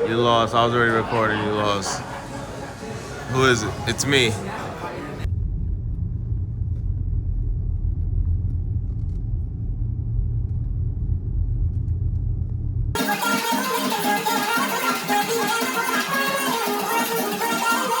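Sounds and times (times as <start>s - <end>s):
guitar music: 13.0s - 18.0s.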